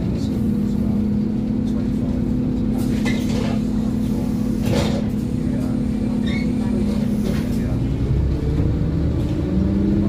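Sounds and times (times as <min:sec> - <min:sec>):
bus diesel engine drone: 0:00.0 - 0:10.0.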